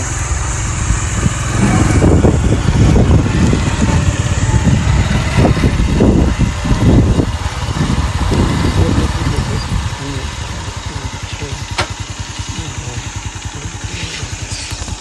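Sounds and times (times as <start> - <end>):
wind rumble on microphone: 0.0 - 11.7
motorcycle engine running: 0.0 - 15.0.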